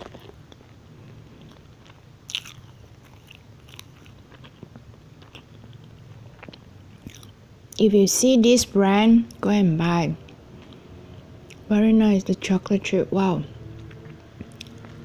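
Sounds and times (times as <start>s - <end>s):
chewing soft muffin: 0.0s - 7.9s, 10.2s - 11.7s, 13.7s - 15.0s.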